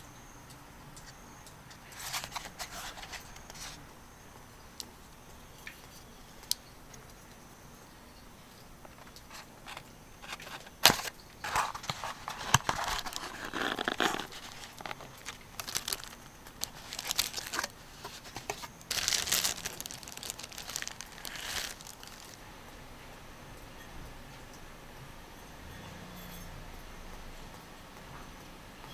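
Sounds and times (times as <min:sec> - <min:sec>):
crinkling and rustling: 0:01.7 - 0:03.8, 0:08.9 - 0:22.4.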